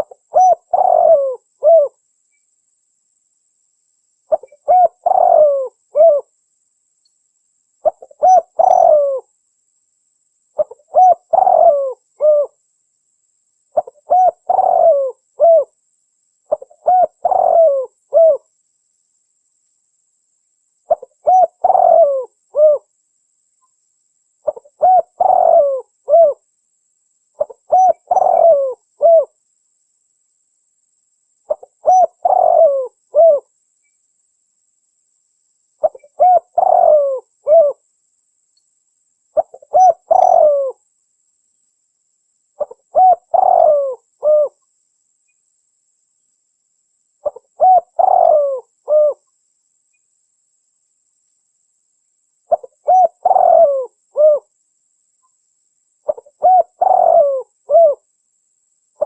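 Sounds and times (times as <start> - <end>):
dove cooing: 0.0 - 2.0, 4.3 - 6.3, 7.8 - 9.3, 10.6 - 12.6, 13.8 - 15.8, 16.5 - 18.5, 20.9 - 22.9, 24.4 - 26.4, 27.4 - 29.4, 31.5 - 33.5, 35.8 - 37.8, 39.4 - 40.8, 42.6 - 44.6, 47.2 - 49.2, 52.5 - 54.5, 56.1 - 58.0.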